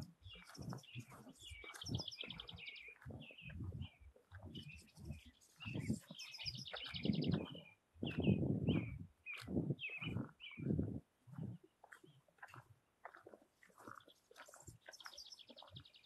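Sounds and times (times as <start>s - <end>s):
low rumbling on microphone: 0.0s - 12.0s
birds chirping: 0.0s - 12.6s, 13.8s - 16.0s.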